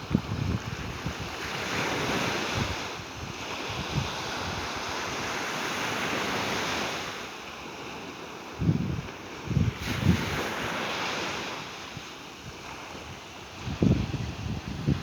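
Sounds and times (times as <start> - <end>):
wind buffeting microphone: 0.0 - 5.3, 8.5 - 10.8, 11.9 - 15.0
sea waves washing onto beach: 0.0 - 15.0.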